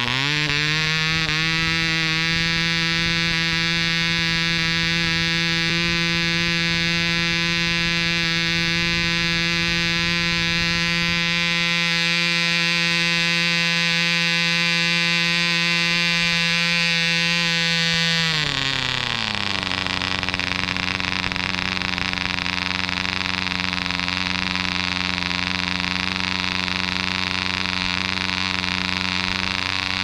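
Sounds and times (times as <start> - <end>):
model airplane engine buzzing: 0.0 - 30.0.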